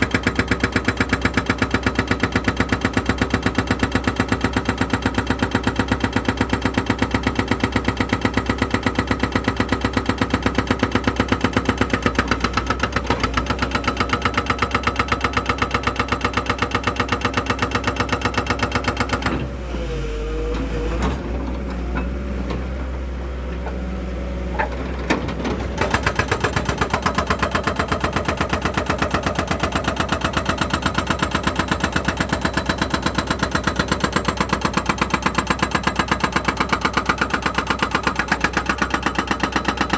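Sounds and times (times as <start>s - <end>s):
engine running: 18.4s - 39.9s.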